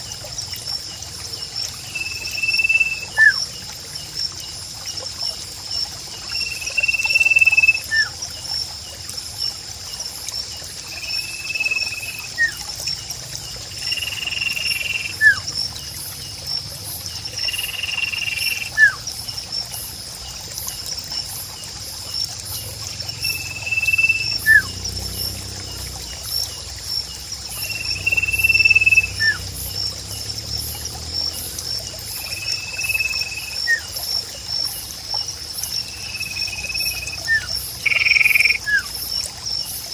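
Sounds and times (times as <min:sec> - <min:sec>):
faint trickle of water: 0:00.0 - 0:39.9
high insect trill: 0:00.0 - 0:39.9
bird calling: 0:02.1 - 0:03.4, 0:23.3 - 0:24.7.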